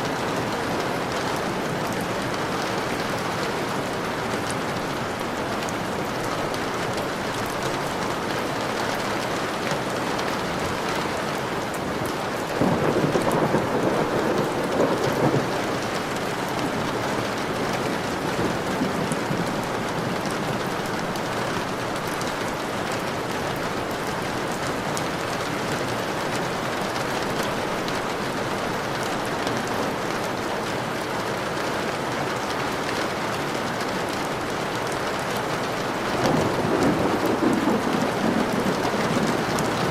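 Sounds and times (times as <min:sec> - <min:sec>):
heavy rain: 0:00.0 - 0:39.9
thunder rumbling: 0:12.5 - 0:21.3, 0:36.2 - 0:39.9.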